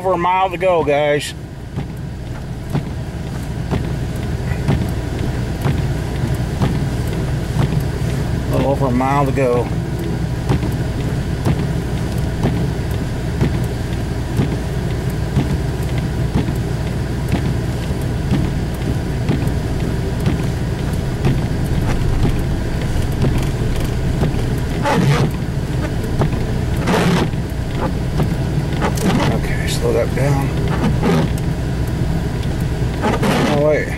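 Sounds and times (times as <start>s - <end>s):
engine and road rumble: 0.0s - 33.9s.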